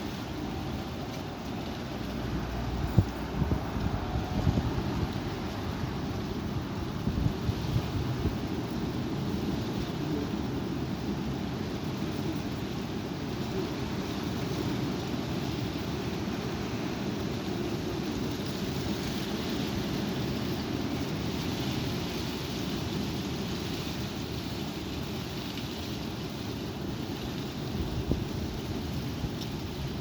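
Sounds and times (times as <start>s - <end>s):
strong wind rumbling on microphone: 0.0s - 30.0s.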